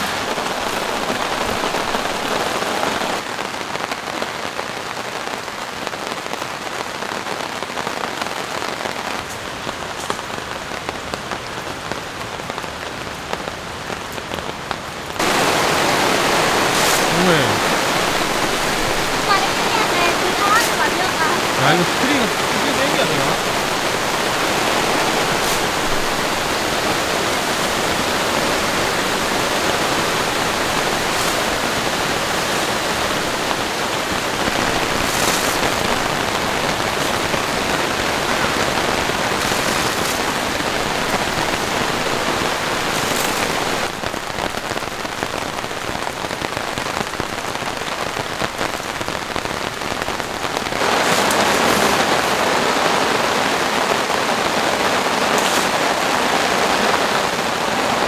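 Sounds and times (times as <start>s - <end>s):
heavy rain on tarp and tents: 0.0s - 58.0s.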